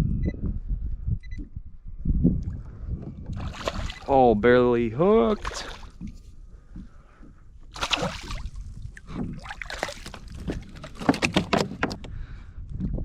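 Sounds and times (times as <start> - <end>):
water sloshing and splashing: 2.5 - 4.2, 5.2 - 6.9, 7.7 - 12.1.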